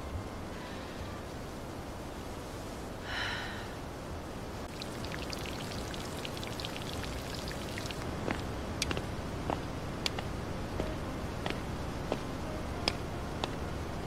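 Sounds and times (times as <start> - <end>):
light rain hiss: 0.0 - 14.0
raindrops ticking on surfaces: 4.6 - 13.6.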